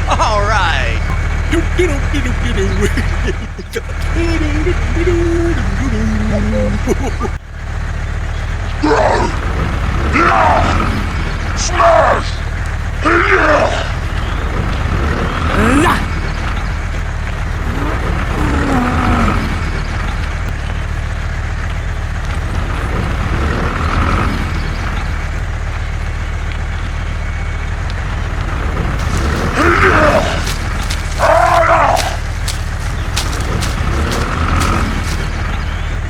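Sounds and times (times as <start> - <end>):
short voice calls: 29.0 - 35.3.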